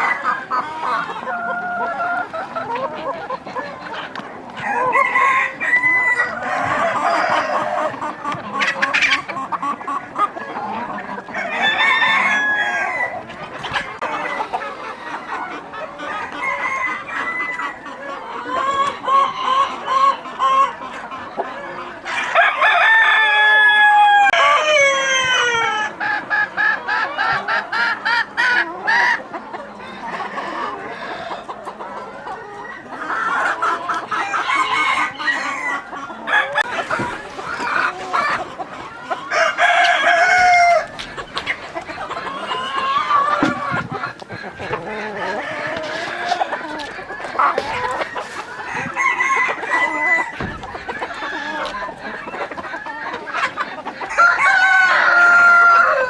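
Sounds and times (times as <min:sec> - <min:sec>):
chickens clucking: 0:00.0 - 0:56.0
rooster crowing: 0:11.4 - 0:13.2, 0:22.4 - 0:24.8, 0:39.3 - 0:41.0, 0:48.7 - 0:50.4, 0:54.1 - 0:56.0.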